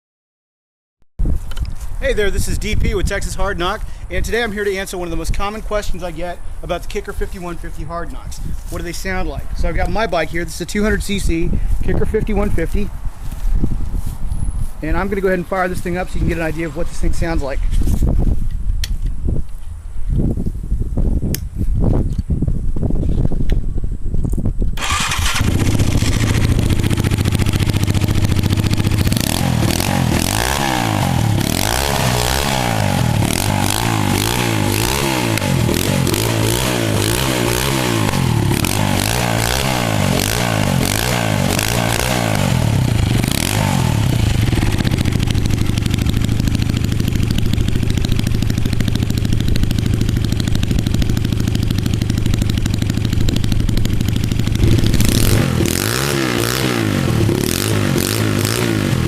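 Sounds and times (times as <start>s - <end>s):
motorcycle engine revving and idling: 24.8s - 59.0s.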